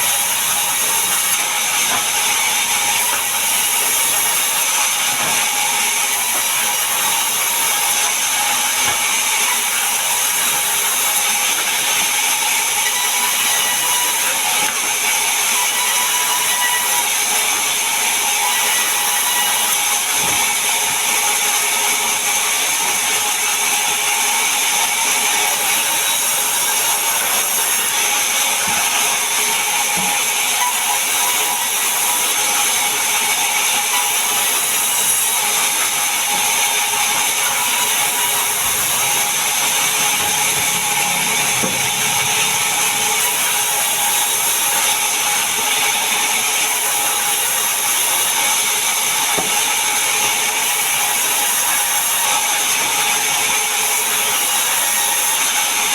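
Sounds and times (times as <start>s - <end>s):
power saw cutting wood: 0.0s - 55.9s.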